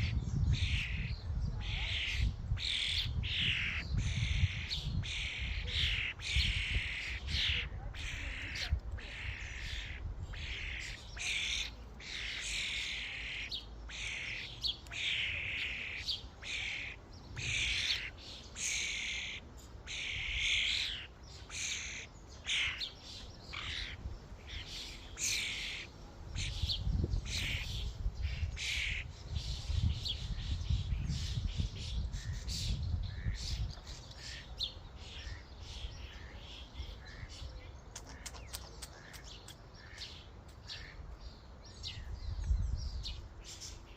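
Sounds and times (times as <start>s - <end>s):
starlings calling harshly: 0.0s - 43.9s.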